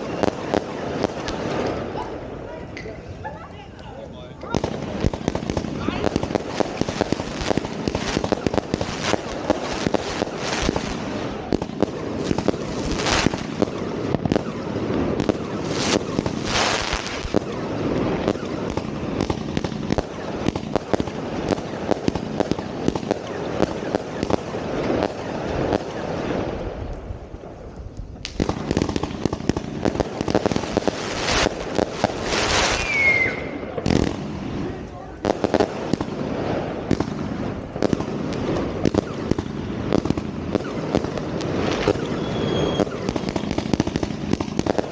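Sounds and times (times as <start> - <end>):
fireworks bangs and cracks: 0.0 - 2.4, 4.4 - 27.6, 28.2 - 44.9
firework hissing bursts: 4.7 - 26.5, 28.3 - 34.8
falling firework whistle: 32.2 - 33.7, 40.5 - 43.8.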